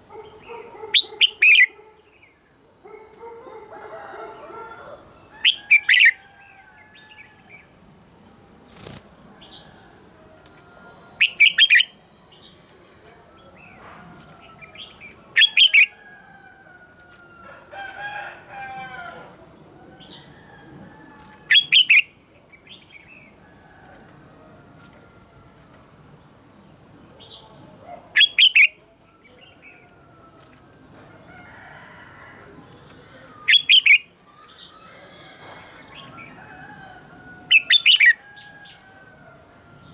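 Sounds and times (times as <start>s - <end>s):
bulbul singing: 11.2s - 16.0s, 32.8s - 39.9s.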